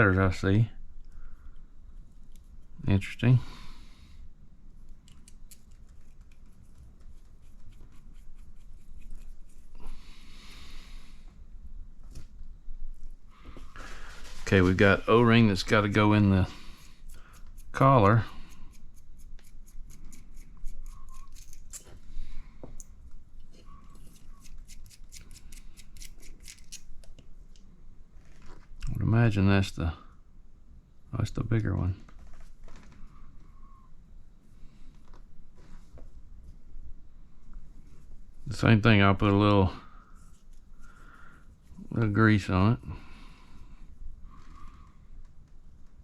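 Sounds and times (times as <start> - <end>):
short rustle: 13.4 - 15.8
small parts clicking by hand: 16.8 - 21.9, 24.0 - 27.2.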